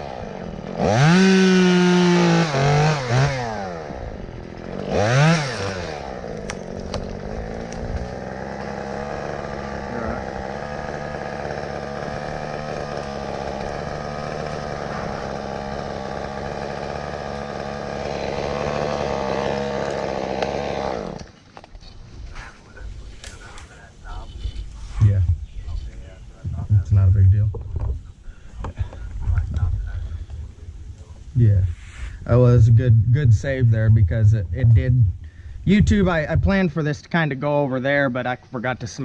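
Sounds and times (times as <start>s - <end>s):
chainsaw cutting wood: 0.0s - 21.8s.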